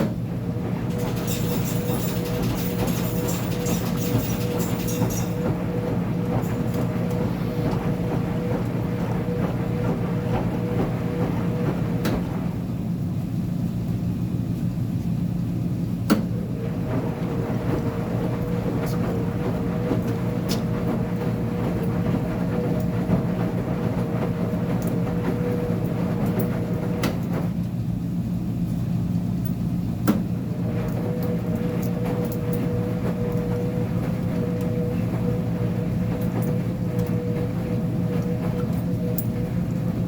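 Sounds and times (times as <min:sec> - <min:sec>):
washing machine humming: 0:00.0 - 0:40.0.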